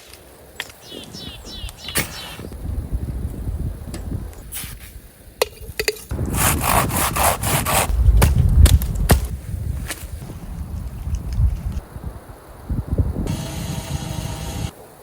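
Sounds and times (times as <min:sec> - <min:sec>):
hand saw cutting wood: 0:06.3 - 0:07.9.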